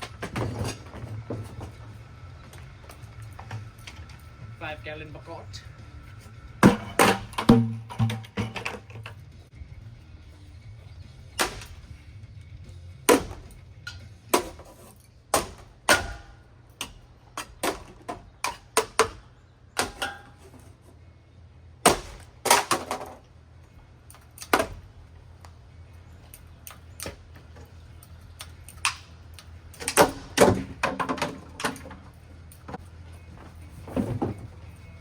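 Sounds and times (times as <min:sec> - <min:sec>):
steady low hum: 0:00.0 - 0:17.4
metal impacts smashing fan: 0:06.6 - 0:09.1, 0:11.4 - 0:11.9, 0:13.0 - 0:13.6, 0:15.3 - 0:19.2, 0:19.8 - 0:20.4, 0:21.8 - 0:23.2.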